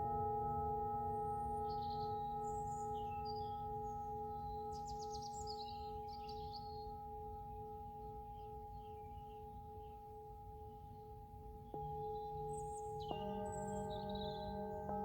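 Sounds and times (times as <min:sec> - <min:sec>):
faint birds chirping: 0:11.6 - 0:15.0.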